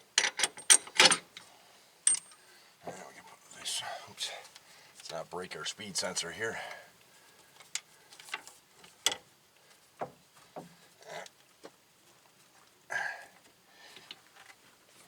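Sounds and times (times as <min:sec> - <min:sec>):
tools and parts clicking: 0:00.2 - 0:01.4, 0:02.0 - 0:02.4.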